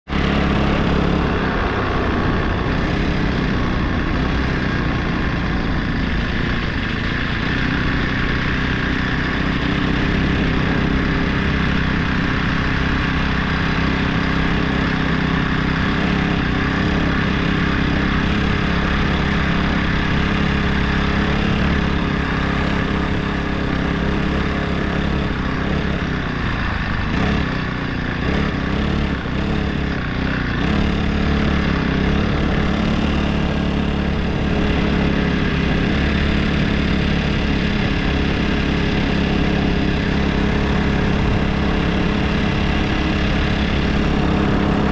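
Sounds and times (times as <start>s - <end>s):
small engine running: 0.1s - 44.9s.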